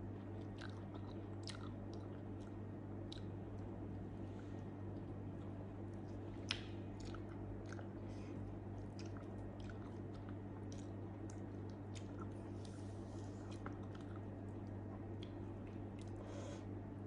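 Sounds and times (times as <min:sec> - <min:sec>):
steady low hum: 0:00.0 - 0:17.0
close chewing with wet mouth clicks: 0:00.2 - 0:03.4, 0:05.0 - 0:08.1, 0:08.7 - 0:12.8, 0:13.4 - 0:16.2.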